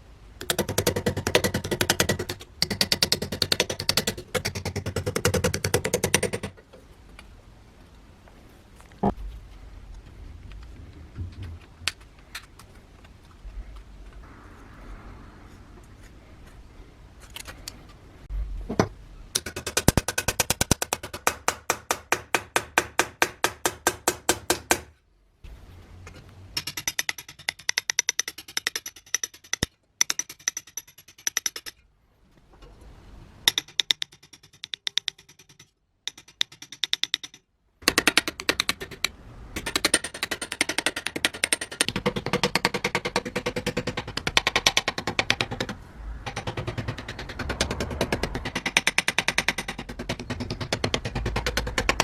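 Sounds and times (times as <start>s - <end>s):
rapid sharp clicking strokes: 0.4s - 6.6s, 26.6s - 31.8s, 33.5s - 52.0s.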